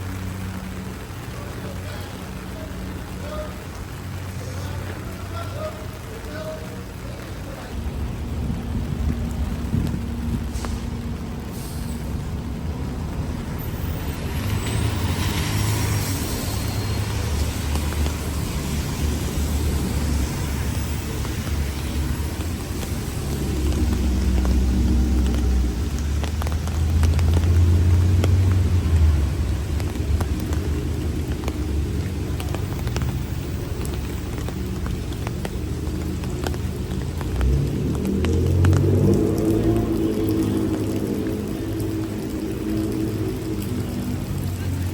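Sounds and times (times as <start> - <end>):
heavy rain falling: 0.0 - 44.9
heavy vehicle engine humming: 0.0 - 44.9
low rumble: 7.7 - 17.0.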